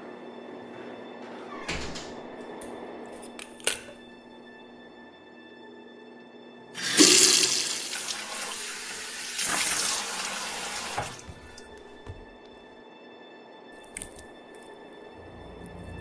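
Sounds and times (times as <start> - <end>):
tap water running into sink: 6.8 - 11.8
person washing face: 6.8 - 12.0.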